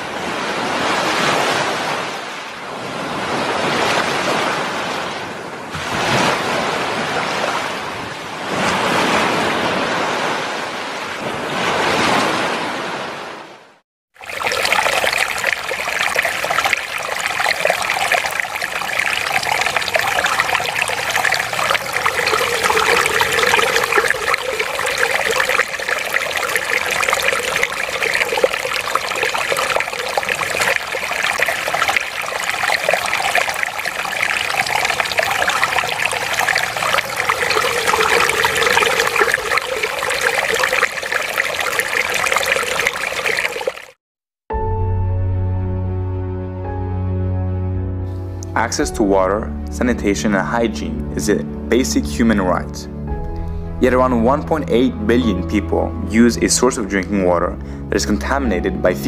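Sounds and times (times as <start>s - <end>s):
fountain water trickling: 14.2s - 44.0s.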